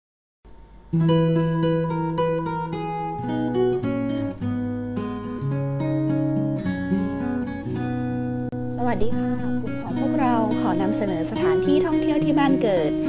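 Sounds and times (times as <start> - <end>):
acoustic guitar strumming chords: 0.9 - 13.0.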